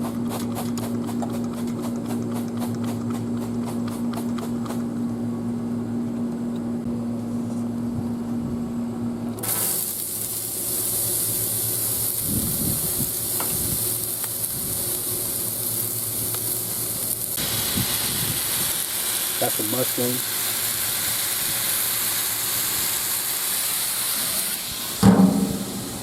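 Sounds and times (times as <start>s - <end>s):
vegetables sizzling on griddle: 9.4s - 26.0s
low hum: 25.0s - 26.0s.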